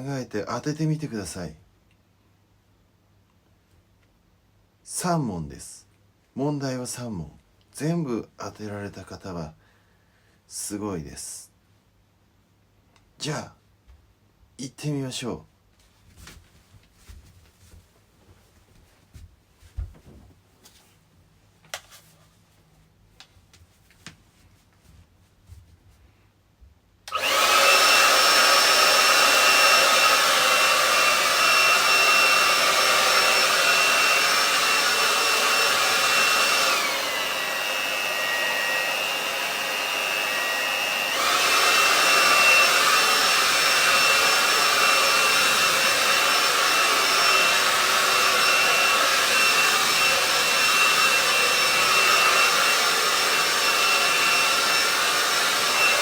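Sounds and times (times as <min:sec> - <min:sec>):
hair dryer whirring: 0:27.1 - 0:56.0.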